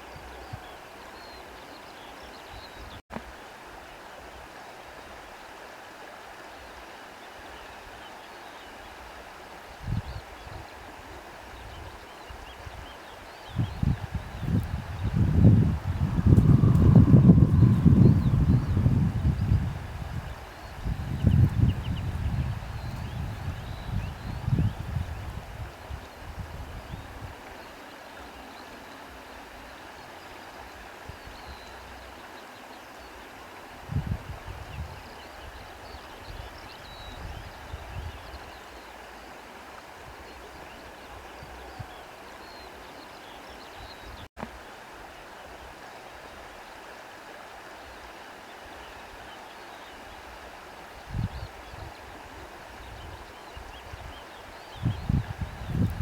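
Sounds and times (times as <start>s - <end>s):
wind through trees: 0.0s - 56.0s
faint birds chirping: 9.8s - 33.5s
low wind buffeting: 13.6s - 27.5s, 54.8s - 56.0s.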